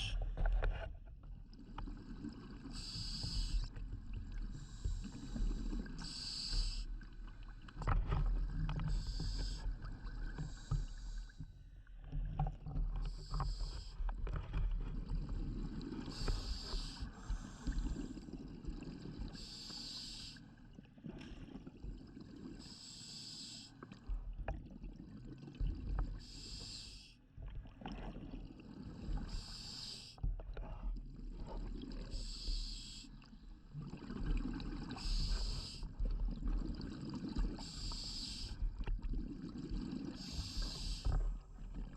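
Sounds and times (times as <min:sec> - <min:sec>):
diver breathing through regulator: 0:02.5 - 0:03.8, 0:04.4 - 0:07.0, 0:08.8 - 0:09.8, 0:13.0 - 0:14.6, 0:15.4 - 0:18.2, 0:19.2 - 0:20.5, 0:22.6 - 0:23.8, 0:26.2 - 0:27.2, 0:28.9 - 0:30.8, 0:31.4 - 0:33.2, 0:34.7 - 0:36.5, 0:37.3 - 0:38.9, 0:39.6 - 0:41.6.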